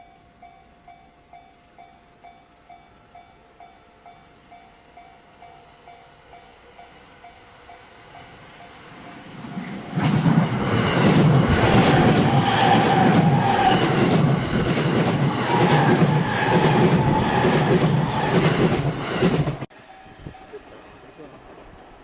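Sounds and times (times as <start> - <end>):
electric train passing close by: 0.0 - 22.0
wheels clattering on rail: 7.7 - 19.7.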